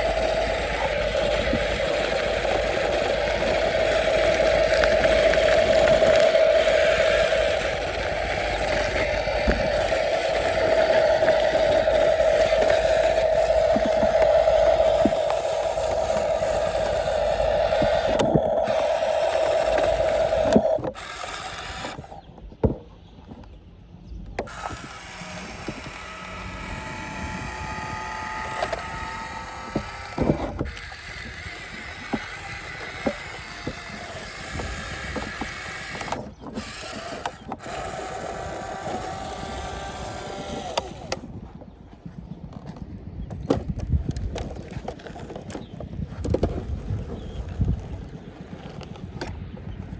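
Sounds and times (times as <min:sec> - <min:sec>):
clicks: 0:00.0 - 0:23.6
toy truck motors whining: 0:00.0 - 0:49.9.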